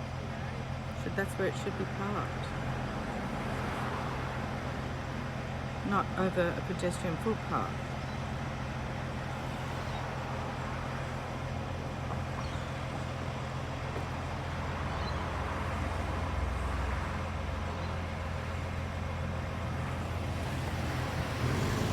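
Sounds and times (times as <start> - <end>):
road traffic hum: 0.0 - 21.9.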